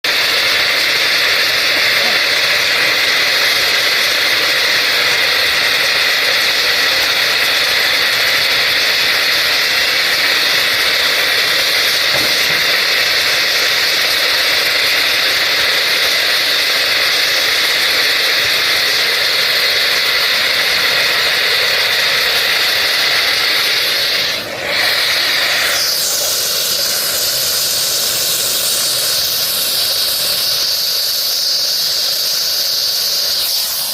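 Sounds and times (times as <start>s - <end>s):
loud welding hiss: 0.0s - 33.9s.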